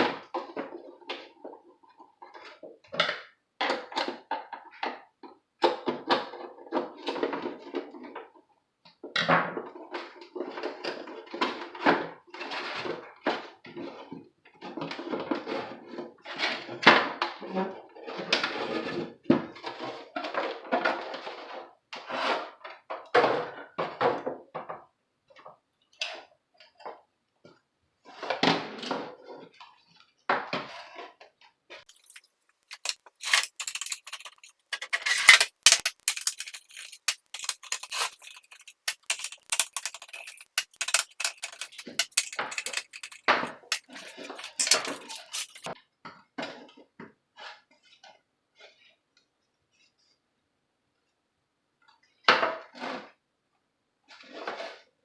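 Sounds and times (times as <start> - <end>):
hard parts clattering: 31.9 - 45.7
sharp clicks and taps: 31.9 - 45.7.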